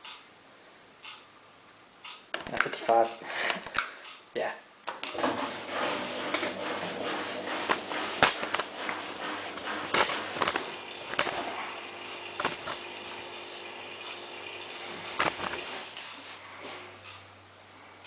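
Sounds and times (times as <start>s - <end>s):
water running into washing machine: 5.1s - 16.0s.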